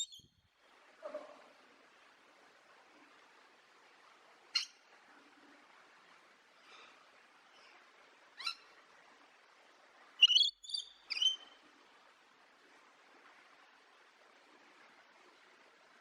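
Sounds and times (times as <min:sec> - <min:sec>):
bird calling: 0:00.0 - 0:00.3, 0:10.2 - 0:11.4
faint background hiss: 0:00.0 - 0:16.0.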